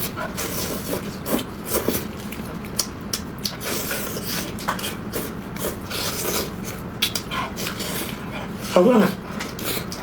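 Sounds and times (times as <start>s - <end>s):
wet chewing and lip smacking: 1.0s - 5.8s, 6.7s - 8.2s.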